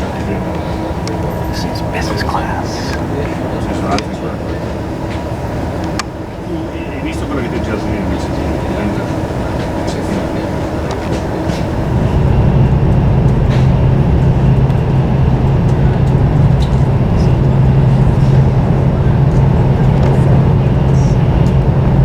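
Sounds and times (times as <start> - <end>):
train rumble: 0.0 - 22.0
strong low hum: 7.8 - 22.0.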